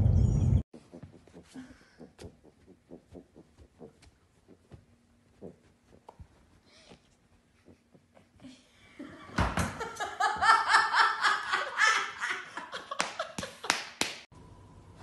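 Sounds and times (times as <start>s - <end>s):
person laughing hard: 9.0s - 13.7s.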